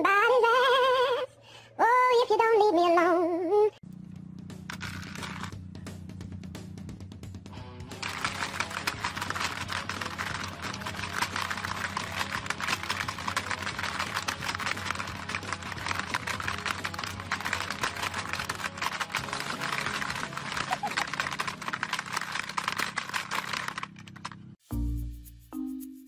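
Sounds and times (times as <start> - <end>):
plastic game pieces clattering: 4.7 - 5.5, 8.0 - 24.6.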